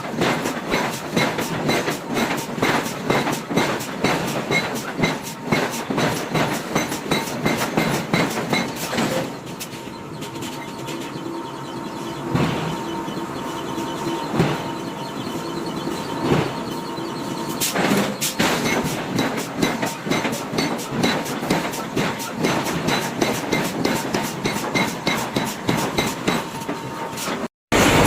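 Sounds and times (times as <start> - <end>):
machinery hum: 0.0 - 22.9, 26.6 - 28.0
forging hammer striking iron: 0.2 - 9.3, 17.6 - 26.6.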